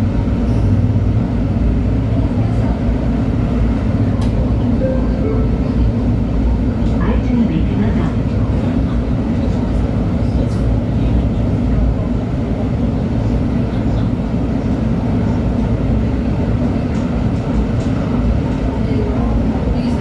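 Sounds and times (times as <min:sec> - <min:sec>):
wheels rumbling on track: 0:00.0 - 0:04.8
light-rail car running: 0:00.0 - 0:20.0.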